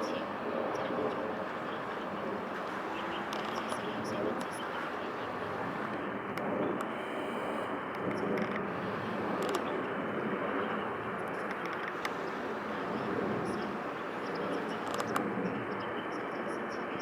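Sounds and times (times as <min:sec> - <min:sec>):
faint clicks: 0:00.0 - 0:07.1, 0:07.9 - 0:09.9, 0:11.2 - 0:15.4
outdoor background noise: 0:00.0 - 0:17.0.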